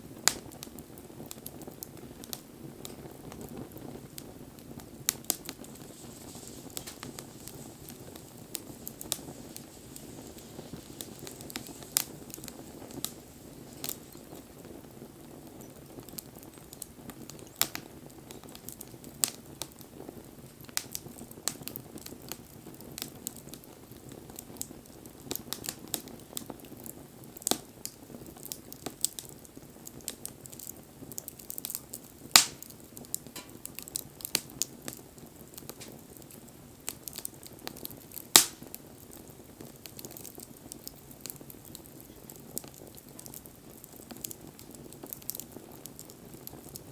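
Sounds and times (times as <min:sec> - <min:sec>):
low rush of flame: 0:00.0 - 0:26.1
bonfire crackling and popping: 0:00.0 - 0:46.9.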